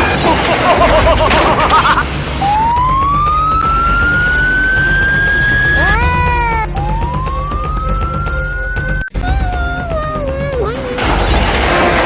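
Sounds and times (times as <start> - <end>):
siren wailing: 2.4 - 9.1.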